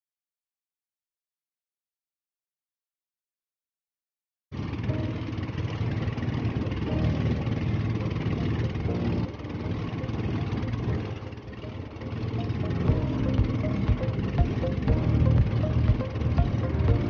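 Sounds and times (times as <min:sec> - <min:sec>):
boat engine running: 0:04.6 - 0:17.0.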